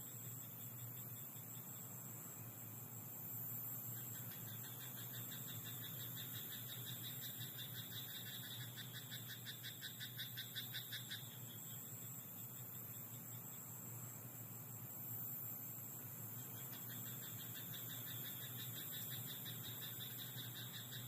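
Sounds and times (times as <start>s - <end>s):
faint steady hiss: 0.0s - 21.0s
frog croaking: 4.0s - 11.5s, 16.6s - 21.0s.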